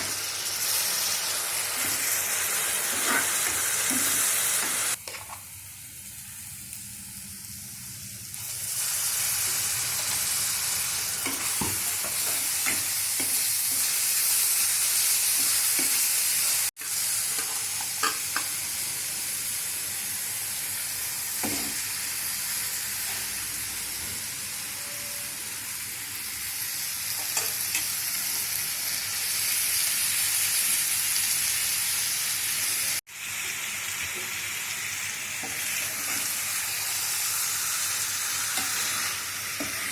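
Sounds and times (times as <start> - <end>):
hot oil sizzling in pan: 0.0 - 39.9.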